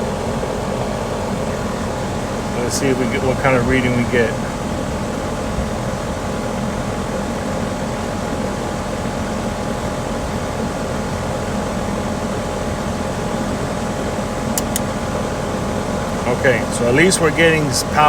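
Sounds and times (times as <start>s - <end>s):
brief click: 14.6s - 14.9s.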